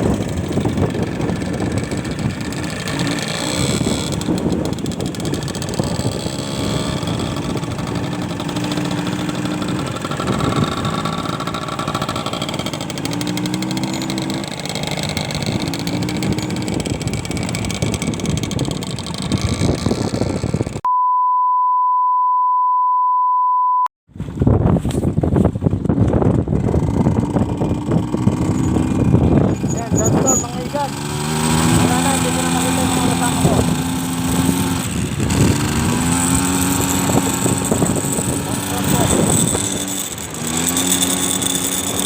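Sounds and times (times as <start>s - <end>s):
vehicle engine running: 0.0s - 20.8s, 25.9s - 42.0s
wind rushing on microphone: 0.0s - 20.8s, 24.1s - 42.0s
steady pure beep: 20.9s - 23.9s.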